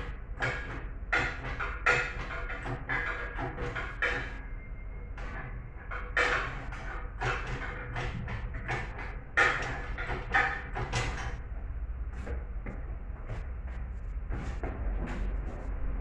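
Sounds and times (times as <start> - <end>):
metal tools knocking and clanking: 0.4 - 4.4, 5.2 - 11.4.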